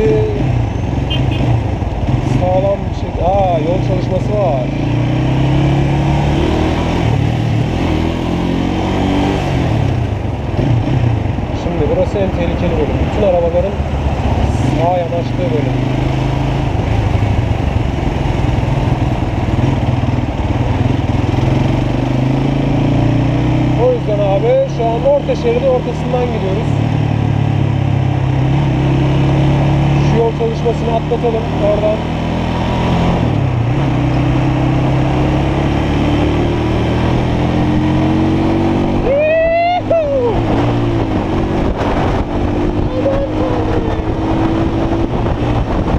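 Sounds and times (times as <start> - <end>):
motorcycle engine running: 0.0 - 45.9
wind noise: 37.0 - 45.9.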